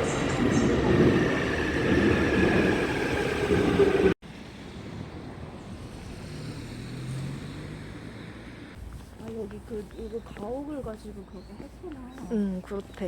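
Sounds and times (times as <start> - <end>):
vehicle rumble: 4.2 - 11.9.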